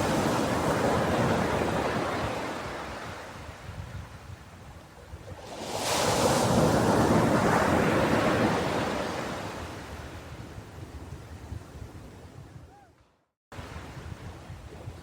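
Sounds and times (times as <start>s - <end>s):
ocean wave breaking on beach: 5.4s - 9.9s.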